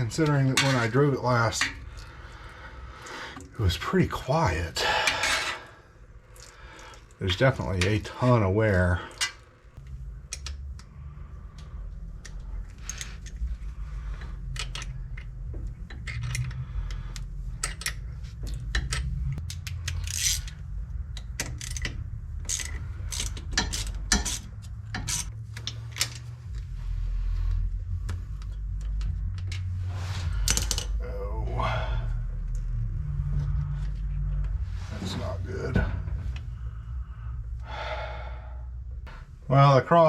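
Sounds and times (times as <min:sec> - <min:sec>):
steady low rumble: 0:00.0 - 0:40.0
metal parts clicking and clinking: 0:11.6 - 0:26.6, 0:30.3 - 0:31.0.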